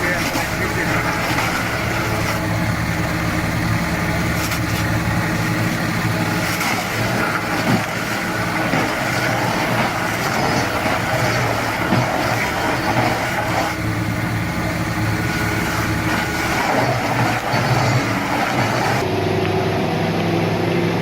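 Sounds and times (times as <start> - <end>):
heavy vehicle engine running: 0.0 - 21.0.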